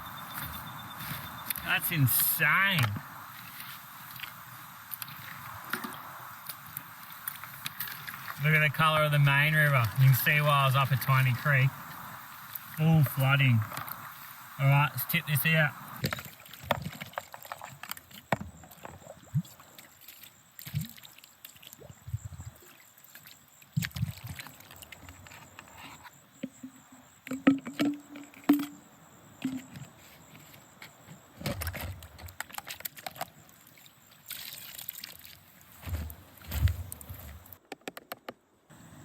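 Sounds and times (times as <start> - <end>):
gravel clinking and knocking: 0.0 - 14.1, 26.4 - 33.6.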